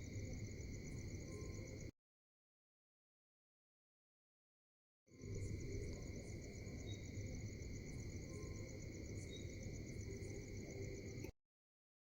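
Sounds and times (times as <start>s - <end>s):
insects trilling: 0.0s - 1.9s, 5.2s - 11.3s.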